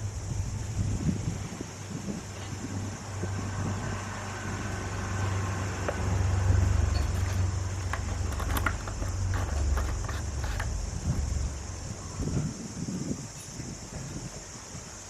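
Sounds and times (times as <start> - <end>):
light clicks and rattles: 5.8 - 11.8.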